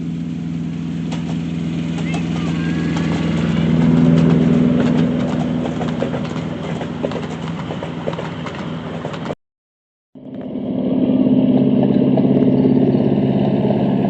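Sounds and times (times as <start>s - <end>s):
miniature train engine hum: 0.0s - 9.4s.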